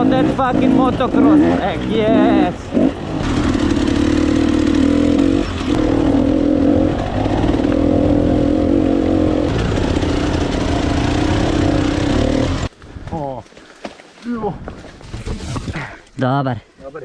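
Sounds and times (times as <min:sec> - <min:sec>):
dirt bike engine revving: 0:00.0 - 0:12.7, 0:15.0 - 0:16.1.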